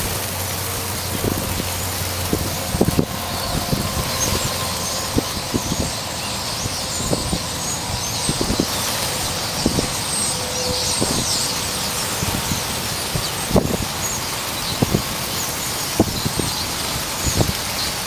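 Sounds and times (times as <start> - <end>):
low rumble: 0.0 - 11.2
flock of birds chattering: 0.0 - 18.0.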